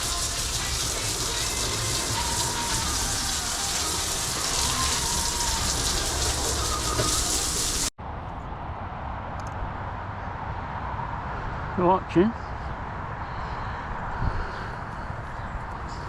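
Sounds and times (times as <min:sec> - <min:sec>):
outdoor hiss: 0:00.0 - 0:07.9.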